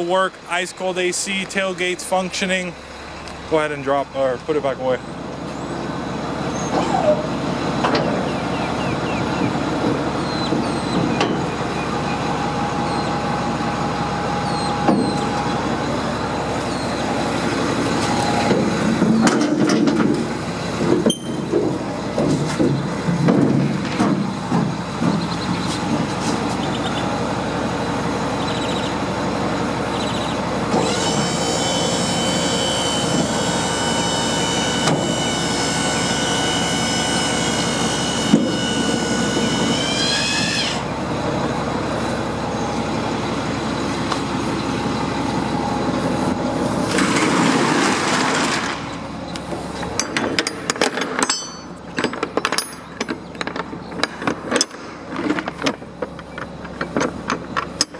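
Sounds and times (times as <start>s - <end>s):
hydraulic pump whine: 0.0s - 57.9s
liftgate metal clanks: 50.0s - 55.8s.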